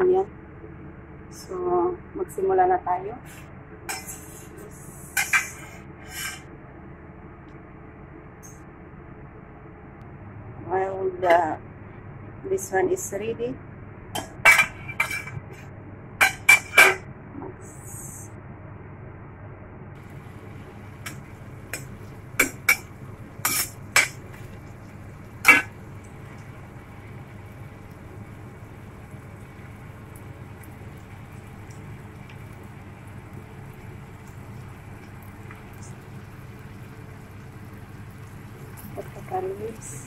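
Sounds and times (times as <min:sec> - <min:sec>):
steady low hum: 0:00.0 - 0:40.0
metal spoon clanking on wok: 0:21.0 - 0:24.2, 0:25.4 - 0:25.8.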